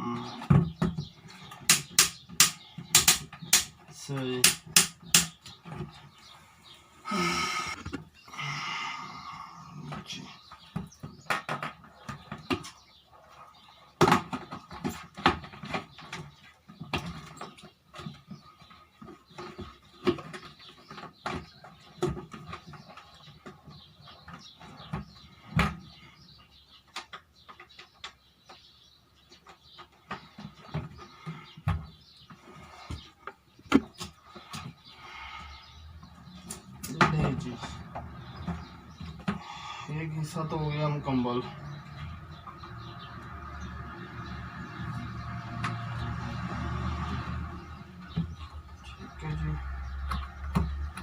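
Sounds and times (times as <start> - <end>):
plastic parts clicking and knocking: 0.4 - 6.1.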